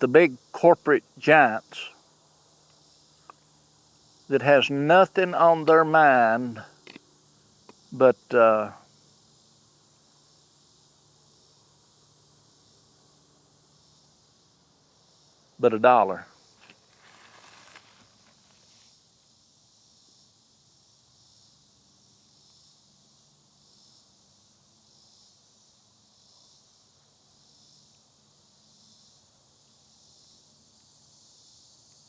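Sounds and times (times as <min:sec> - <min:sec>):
insects buzzing: 0:00.0 - 0:32.0
soft rustles or clicks: 0:16.6 - 0:18.9.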